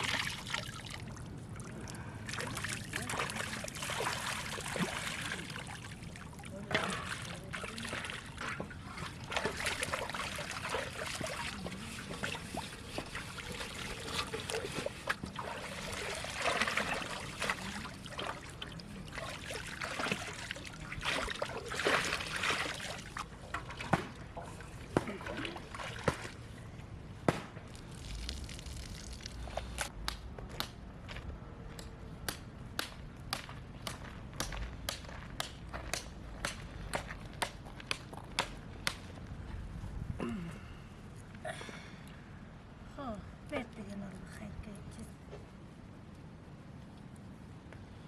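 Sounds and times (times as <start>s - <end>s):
water sloshing and trickling: 0.0s - 26.9s, 27.7s - 29.9s.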